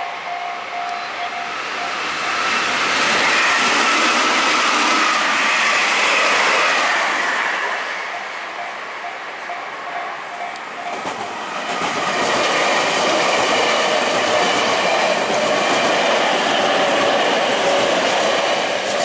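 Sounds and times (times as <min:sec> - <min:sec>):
level crossing warning bell ringing: 0:00.0 - 0:02.6, 0:08.1 - 0:11.5
electric train passing: 0:00.0 - 0:19.0.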